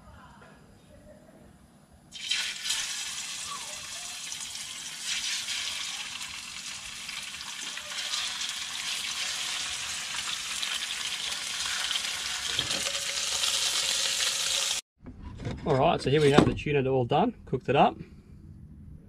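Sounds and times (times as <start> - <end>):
fish sizzling in hot oil: 2.1 - 14.8.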